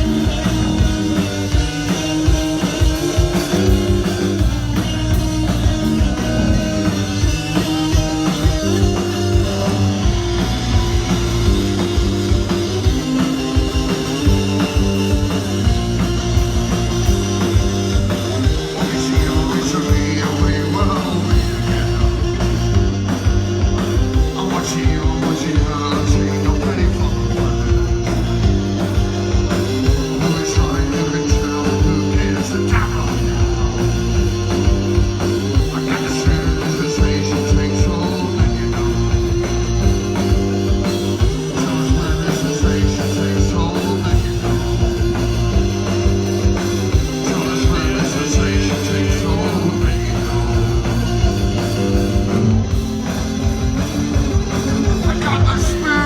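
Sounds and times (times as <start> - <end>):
bass line: 0.0 - 56.0
driving drum beat: 0.0 - 56.0
live rock band playing: 0.0 - 56.0
person singing: 18.2 - 23.2, 23.8 - 52.5, 54.4 - 56.0.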